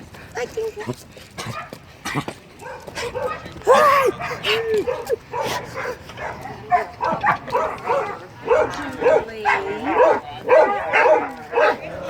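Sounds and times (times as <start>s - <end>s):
dogs barking and yipping: 1.4s - 12.0s.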